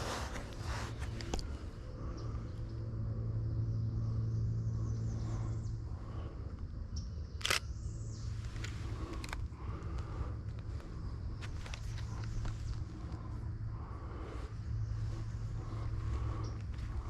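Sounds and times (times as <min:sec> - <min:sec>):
low hum: 0:00.0 - 0:17.0
camera handling noise: 0:07.4 - 0:07.7, 0:08.4 - 0:09.5.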